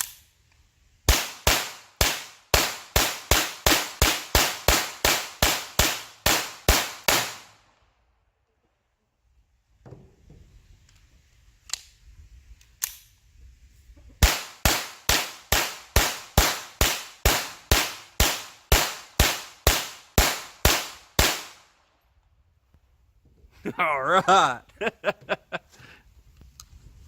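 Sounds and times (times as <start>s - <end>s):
faint gun clicks: 0.0s - 0.7s, 10.8s - 13.2s
pistol shots fired rapidly: 1.1s - 7.5s, 14.2s - 21.6s.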